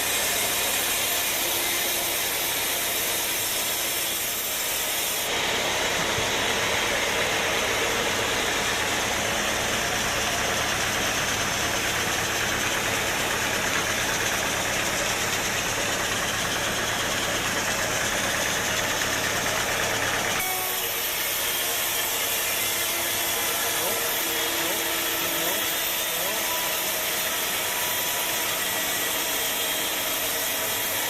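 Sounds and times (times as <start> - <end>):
sawmill machinery hissing: 0.0 - 31.0.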